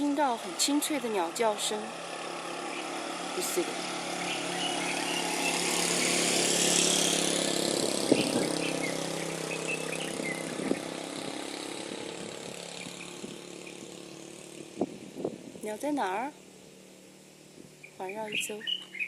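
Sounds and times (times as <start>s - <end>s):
vehicle engine running: 0.0s - 19.0s
faint high bird chirps: 17.8s - 19.0s.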